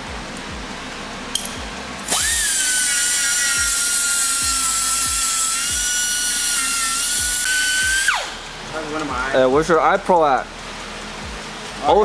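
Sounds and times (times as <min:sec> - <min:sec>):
power cutting tool whining: 0:02.0 - 0:08.5
hiss of metal cutting: 0:02.1 - 0:08.9.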